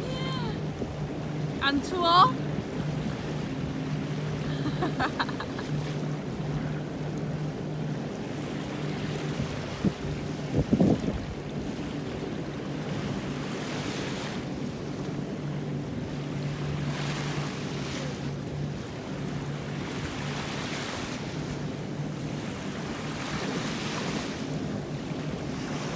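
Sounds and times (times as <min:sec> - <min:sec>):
waves breaking on beach: 0:00.0 - 0:25.9
wind on microphone: 0:08.9 - 0:13.5.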